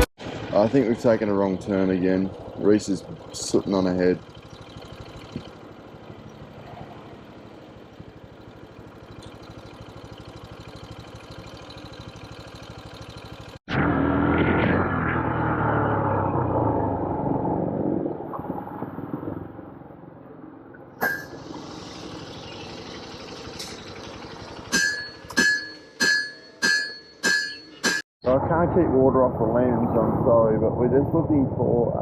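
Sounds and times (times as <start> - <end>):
vehicle engine running: 0.0 - 17.8, 18.6 - 26.0.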